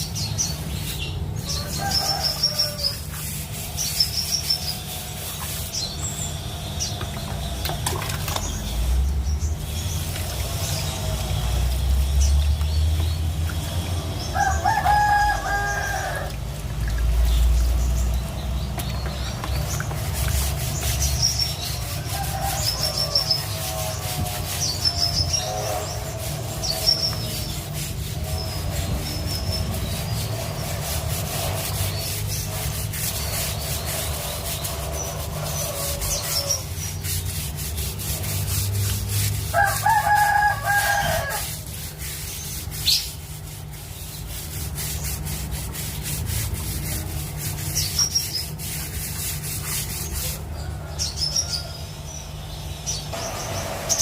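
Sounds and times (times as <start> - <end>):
rubbing scraping noise: 0.0 - 16.3, 17.1 - 51.6
rooster crowing: 1.5 - 3.0, 14.3 - 16.4, 22.0 - 23.8, 35.4 - 36.7, 39.5 - 41.6, 50.5 - 52.0.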